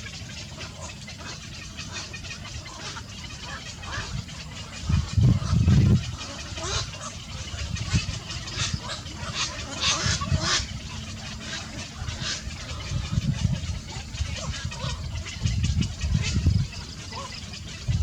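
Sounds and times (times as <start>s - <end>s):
small birds chirping: 0.0s - 18.0s
loud low handling rumble: 5.2s - 6.1s.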